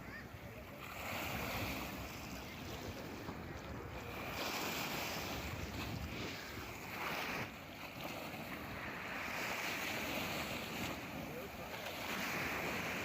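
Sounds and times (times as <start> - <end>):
wind on microphone: 1.5 - 11.2.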